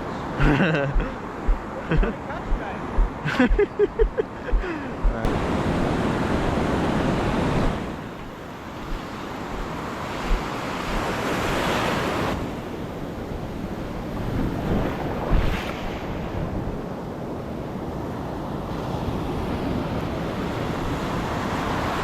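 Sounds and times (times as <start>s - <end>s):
wind buffeting microphone: 0.0s - 17.0s
faint voices: 0.4s - 5.3s
surf washing onto shore: 4.4s - 17.3s.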